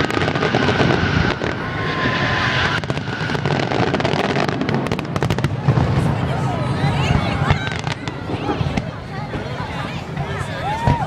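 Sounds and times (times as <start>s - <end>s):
sharp firework cracks: 0.0s - 6.0s
fireworks whistling: 0.0s - 6.2s
fireworks bursting and crackling: 0.0s - 11.0s.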